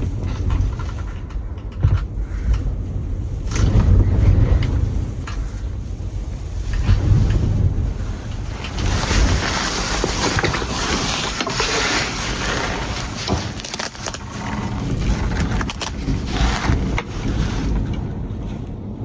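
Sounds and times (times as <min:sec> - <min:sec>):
blizzard wind rushing: 0:00.0 - 0:19.0.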